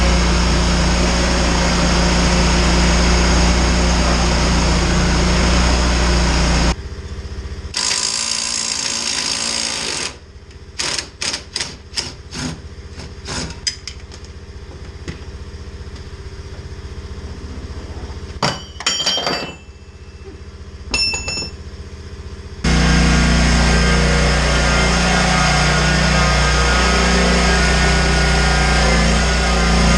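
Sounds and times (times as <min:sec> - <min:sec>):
engine running: 0:00.0 - 0:29.9
metal clinks: 0:18.4 - 0:21.7.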